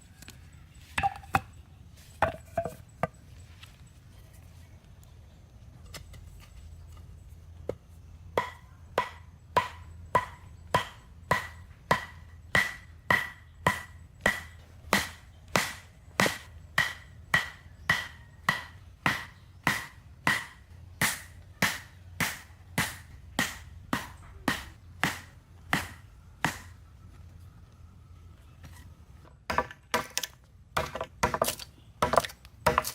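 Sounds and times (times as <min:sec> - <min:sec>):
hand tool striking wood: 0:01.0 - 0:01.5, 0:02.2 - 0:03.2, 0:08.4 - 0:26.7, 0:29.5 - 0:32.9.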